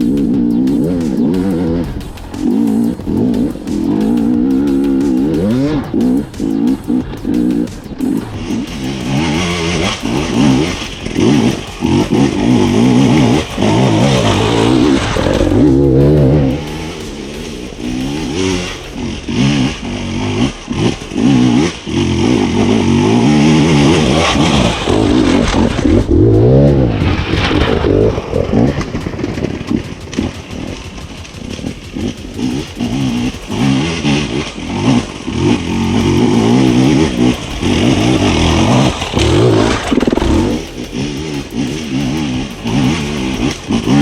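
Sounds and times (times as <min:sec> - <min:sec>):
two-stroke motorcycle engine revving: 0:00.0 - 0:44.0.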